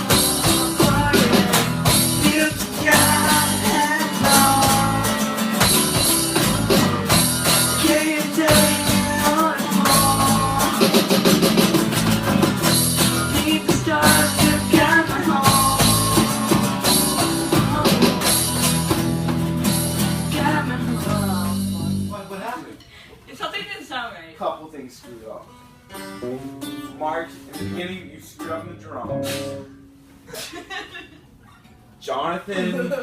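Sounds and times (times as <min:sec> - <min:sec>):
person singing: 0:00.0 - 0:05.6, 0:07.5 - 0:11.5, 0:13.1 - 0:18.6, 0:20.2 - 0:22.0
drum kit with cymbals: 0:00.0 - 0:22.9, 0:29.1 - 0:29.8
guitar: 0:00.0 - 0:24.0, 0:25.0 - 0:33.0.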